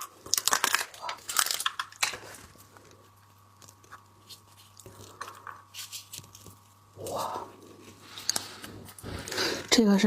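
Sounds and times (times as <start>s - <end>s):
shell cracking: 0.0s - 2.3s.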